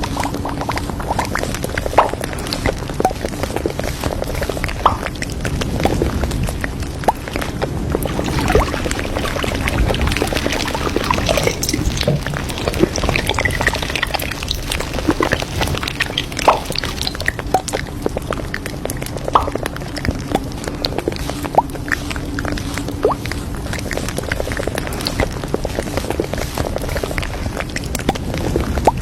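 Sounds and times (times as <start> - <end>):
steady background hum: 0.0 - 29.0
liquid being poured: 8.0 - 21.8.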